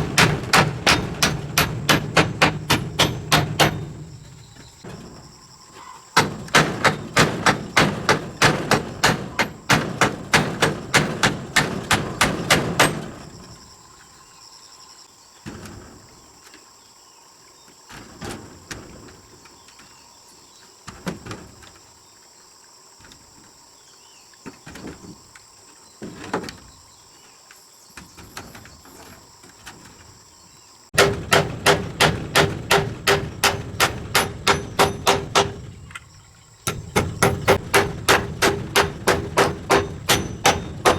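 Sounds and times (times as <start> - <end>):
hammer blows on metal: 0.0 - 4.3, 31.0 - 35.8, 36.7 - 40.9.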